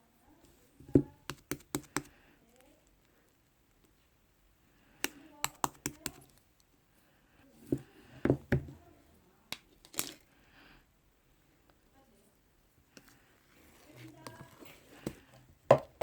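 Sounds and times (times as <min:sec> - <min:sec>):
sharp clicks and taps: 0:01.0 - 0:02.1, 0:05.0 - 0:06.4.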